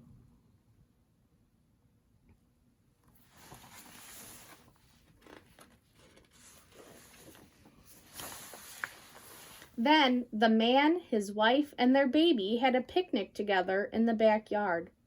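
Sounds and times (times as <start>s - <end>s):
paper page rustling: 3.1s - 9.8s.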